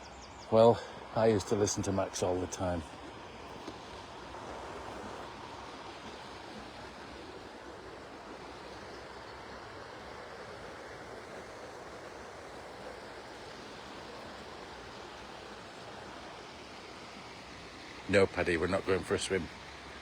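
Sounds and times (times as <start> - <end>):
river rushing: 0.5 - 20.0.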